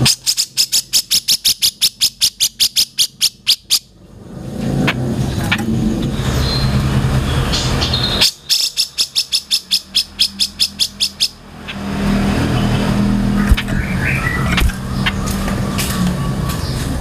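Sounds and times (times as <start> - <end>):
low engine hum: 3.9 - 8.2, 9.9 - 17.0.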